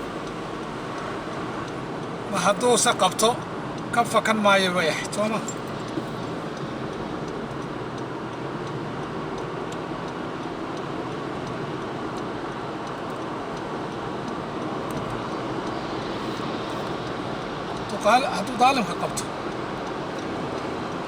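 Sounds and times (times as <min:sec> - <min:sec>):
vehicle moving: 0:00.0 - 0:21.0
faint ticks: 0:05.1 - 0:21.0.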